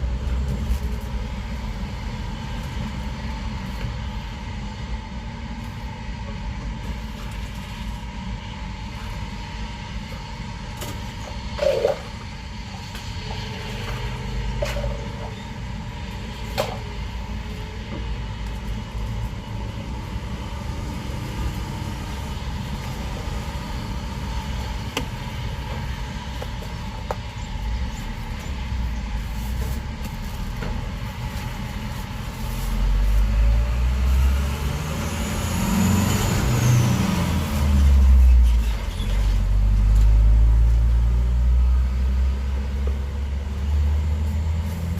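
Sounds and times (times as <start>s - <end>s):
road traffic rumble: 0.0s - 44.9s
vehicle passing: 33.1s - 38.3s.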